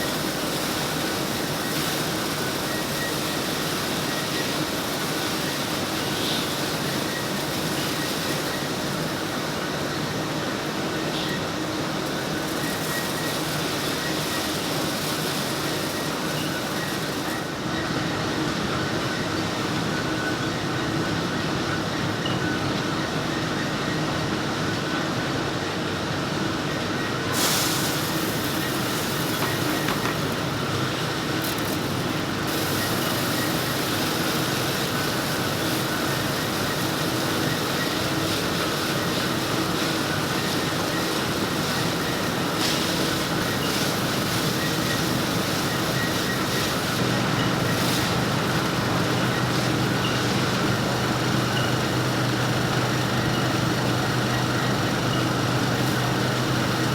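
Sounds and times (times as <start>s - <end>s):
machinery mechanical din: 27.4s - 36.5s.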